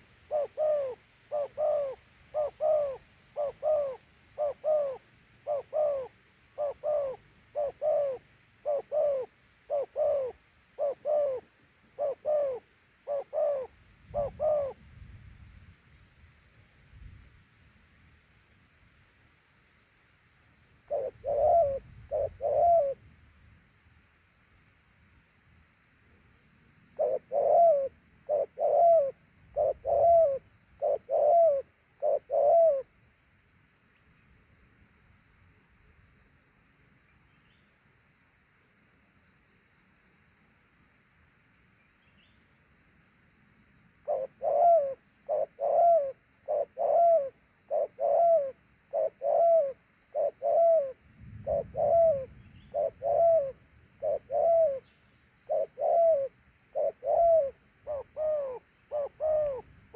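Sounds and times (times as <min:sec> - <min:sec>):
dove cooing: 0:00.0 - 0:14.8, 0:20.8 - 0:23.0, 0:27.0 - 0:32.9, 0:44.0 - 0:59.9
faint insect hiss: 0:00.0 - 0:59.9.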